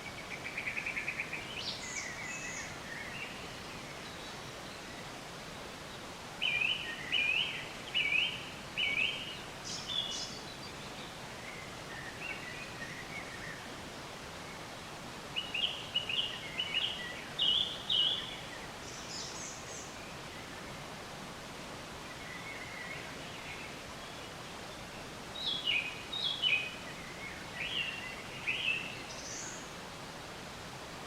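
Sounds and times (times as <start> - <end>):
background hiss: 0.0 - 31.0
songbirds chirping: 0.0 - 31.0.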